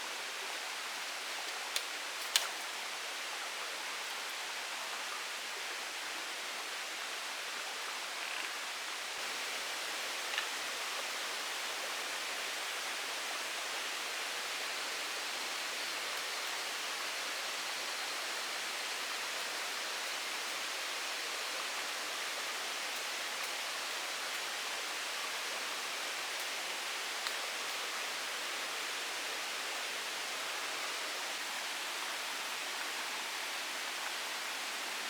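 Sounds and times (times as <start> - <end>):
faint click: 1.7 - 2.6.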